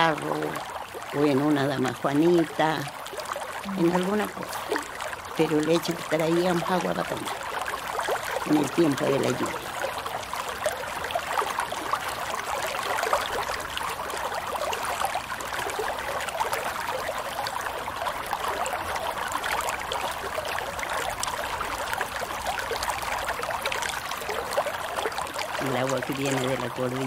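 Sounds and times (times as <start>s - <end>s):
running water babbling: 0.0s - 27.0s.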